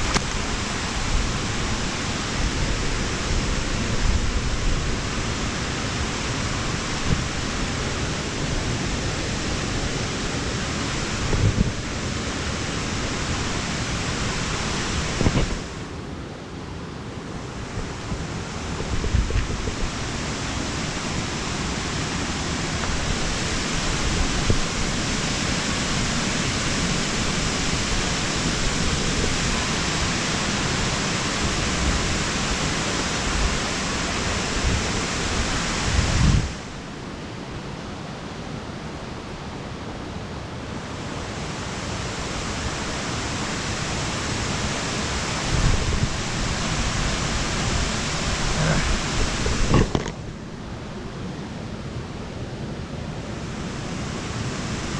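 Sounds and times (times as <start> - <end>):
waterfall rushing: 0.0 - 54.9
camera handling knocks: 49.7 - 50.2.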